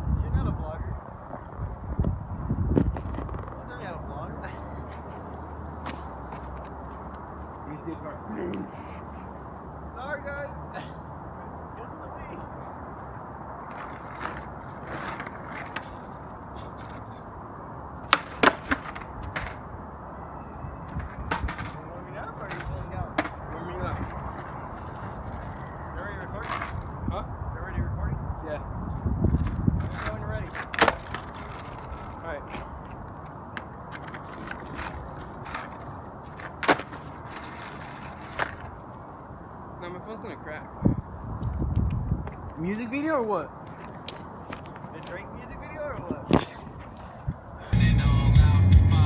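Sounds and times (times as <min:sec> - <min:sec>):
wind buffeting microphone: 0:00.0 - 0:08.0, 0:20.6 - 0:36.4, 0:40.7 - 0:42.6, 0:43.6 - 0:47.8.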